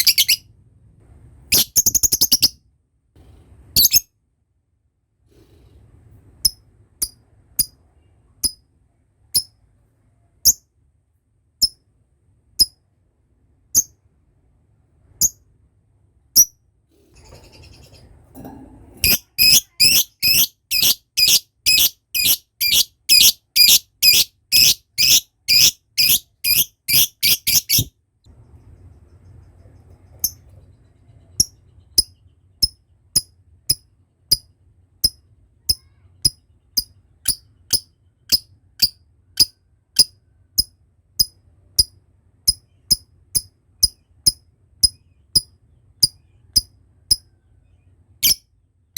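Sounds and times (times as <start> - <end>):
lovebird chirping: 0.0 - 0.4, 1.5 - 2.6, 3.8 - 4.1, 19.0 - 27.9, 30.2 - 33.3, 48.2 - 48.4.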